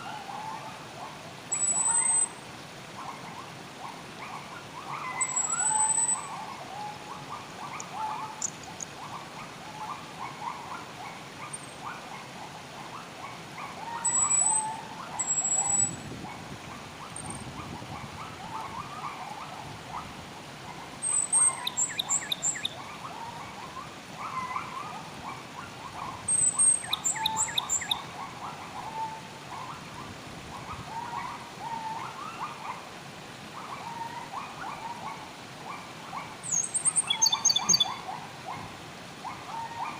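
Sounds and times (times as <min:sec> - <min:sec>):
high bird whistles: 0:01.5 - 0:02.3
birds chirping: 0:05.0 - 0:06.4, 0:07.6 - 0:10.0, 0:21.0 - 0:22.8, 0:26.3 - 0:28.1, 0:36.5 - 0:38.0
rapid bird trills: 0:07.6 - 0:09.2, 0:36.5 - 0:38.0.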